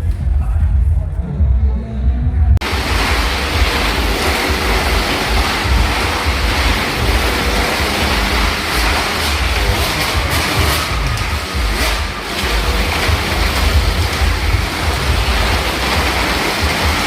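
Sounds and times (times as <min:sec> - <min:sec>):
motorcycle engines running hard: 0:02.6 - 0:17.0.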